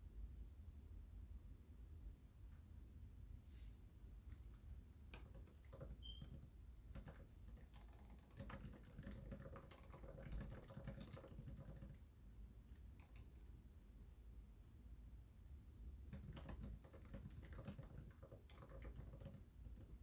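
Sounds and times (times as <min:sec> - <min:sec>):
faint keyboard typing: 0:04.2 - 0:13.6, 0:15.9 - 0:20.0.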